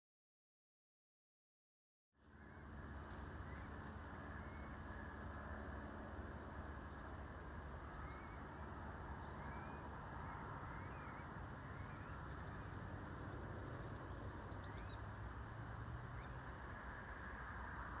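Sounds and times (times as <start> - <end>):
low rumble and hiss: 2.2 - 18.0
small birds chirping: 2.3 - 5.1, 7.8 - 16.6.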